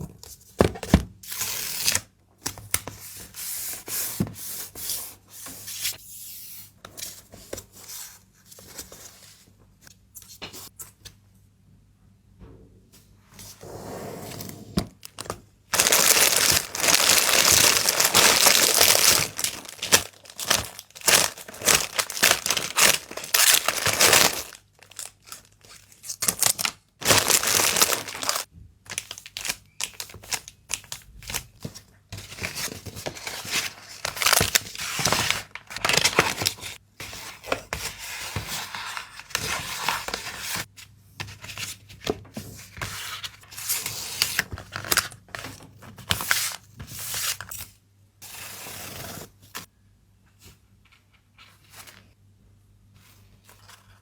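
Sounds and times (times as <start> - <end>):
packaging material crinkling: 15.0 - 31.0, 33.6 - 36.6.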